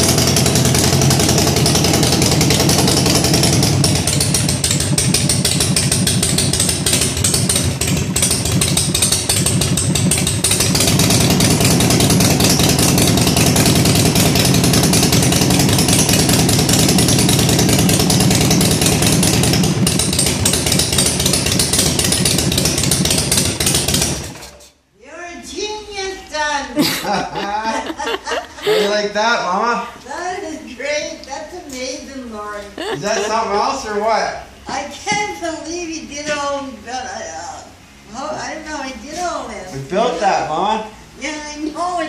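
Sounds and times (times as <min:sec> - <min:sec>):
motorcycle engine running loud: 0:00.0 - 0:24.4.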